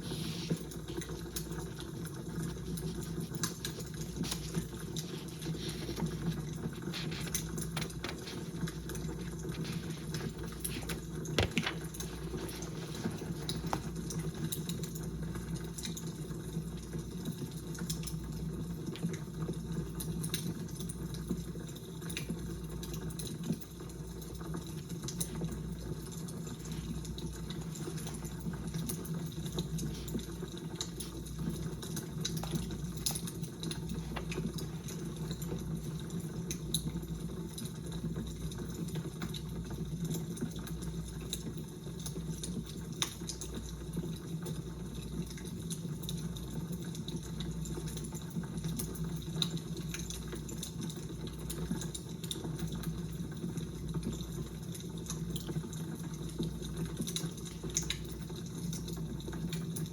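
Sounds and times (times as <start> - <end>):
wood fire crackling: 0.0 - 18.2.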